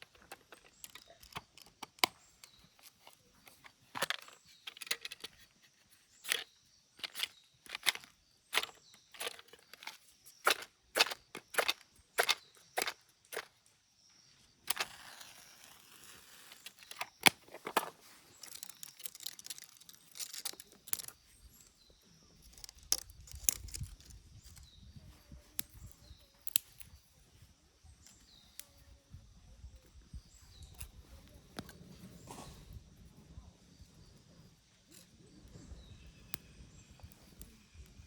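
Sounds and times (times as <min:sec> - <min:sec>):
faint chirps: 0:00.0 - 0:38.0.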